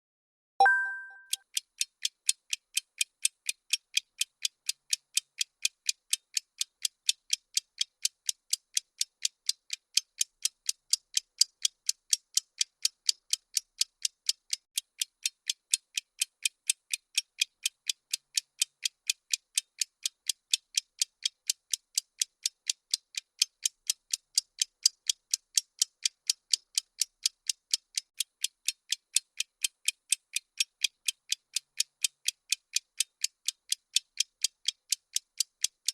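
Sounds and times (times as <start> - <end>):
countdown ticking clicks: 0.6 - 1.4.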